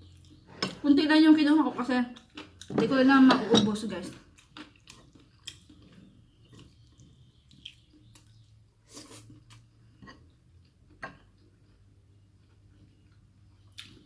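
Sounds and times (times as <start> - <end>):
person chewing food: 0.0 - 0.8, 2.2 - 2.8, 4.2 - 14.0
mouth smacking and clicking: 6.5 - 10.2.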